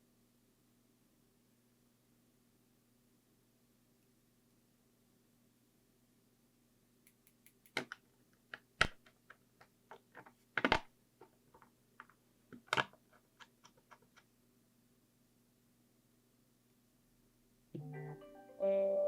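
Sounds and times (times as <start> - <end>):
small clicks and taps of tools: 7.0 - 10.8.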